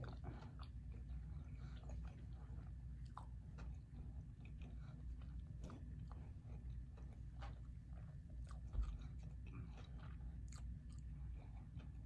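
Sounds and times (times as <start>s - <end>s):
chewing pizza: 0.0s - 12.0s
low steady hum: 0.0s - 12.0s.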